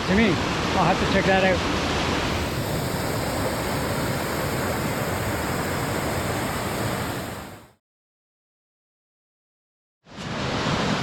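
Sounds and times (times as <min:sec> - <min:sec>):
waterfall rushing: 0:02.1 - 0:07.6.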